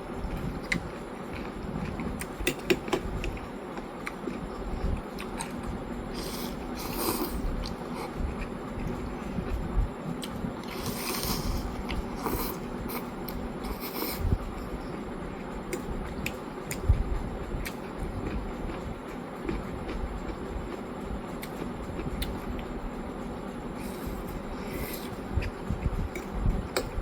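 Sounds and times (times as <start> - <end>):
utensil clicking against bowl: 2.2 - 3.4
slurping noodles: 10.6 - 14.3.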